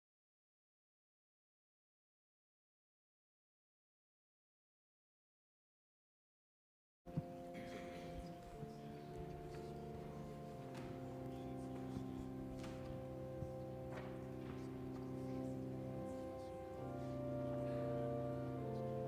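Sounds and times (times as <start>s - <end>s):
organ playing slow chords: 7.1s - 19.0s.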